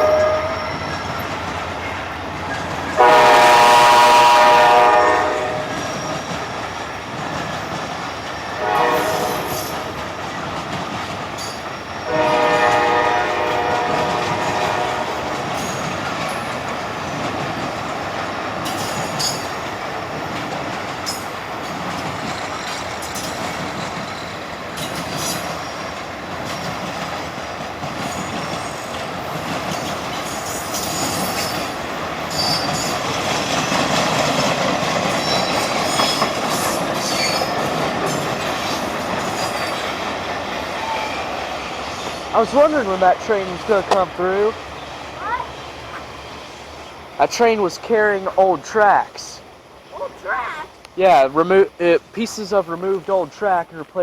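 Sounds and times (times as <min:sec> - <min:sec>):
wheel squeals: 0:00.0 - 0:02.9, 0:05.6 - 0:10.1, 0:21.0 - 0:27.2, 0:29.7 - 0:33.9, 0:35.1 - 0:39.9
freight train wheels rumbling: 0:00.0 - 0:54.0
train clanks: 0:00.0 - 0:54.0.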